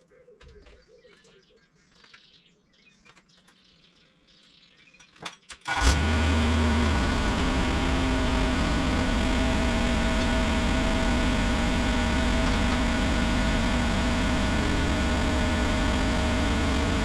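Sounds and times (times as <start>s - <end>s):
engine starting and running: 5.6s - 17.0s.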